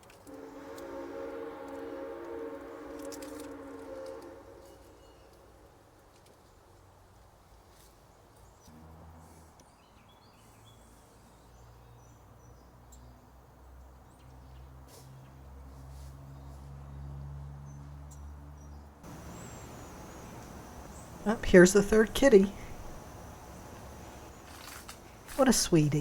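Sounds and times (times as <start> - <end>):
low steady hum: 0.3 - 5.8, 19.1 - 26.0
high bird chirps: 19.1 - 21.3.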